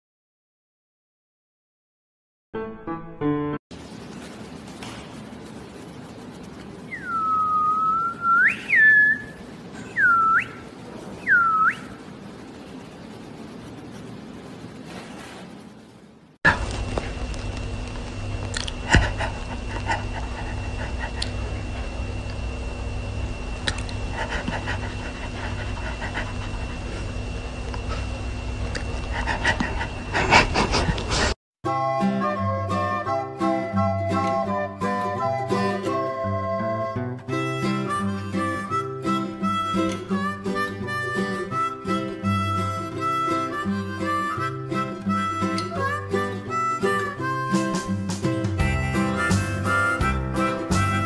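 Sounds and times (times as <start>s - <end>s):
steady low hum: 3.7s - 31.4s
person whistling swooping notes: 6.9s - 12.0s, 31.7s - 51.0s
dog panting: 18.9s - 22.0s, 24.1s - 27.1s, 29.0s - 31.3s.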